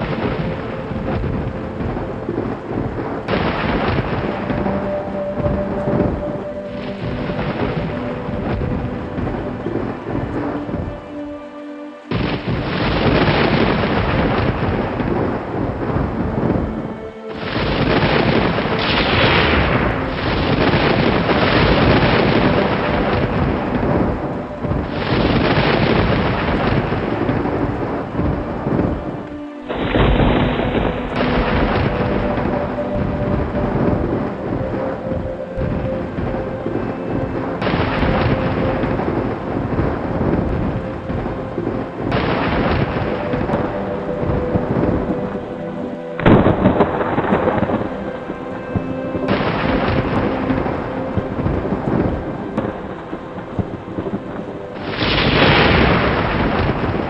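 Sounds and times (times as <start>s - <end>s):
steady rain: 19.8s - 28.2s, 52.6s - 57.0s
faint steady tone: 21.8s - 28.3s.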